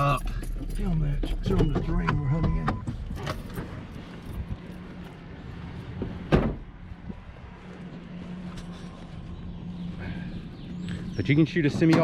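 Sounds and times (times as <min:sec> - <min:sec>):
vehicle engine running: 0:00.0 - 0:12.0
loud thump: 0:06.3 - 0:06.7.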